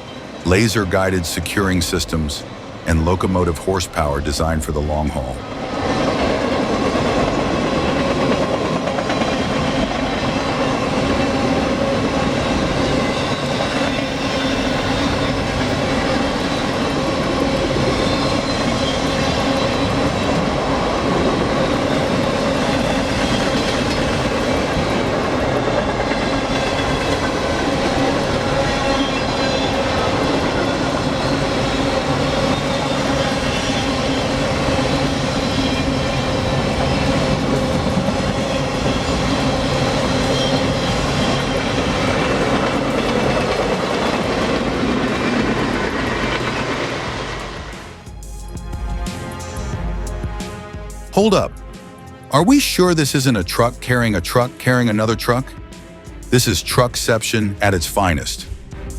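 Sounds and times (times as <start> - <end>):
train wheels on rails: 5.1 - 50.7.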